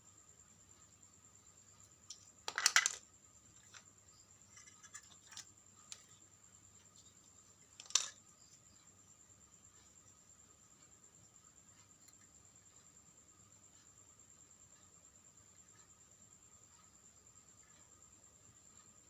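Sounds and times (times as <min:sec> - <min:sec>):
small parts clicking and clattering: 0:01.8 - 0:08.9.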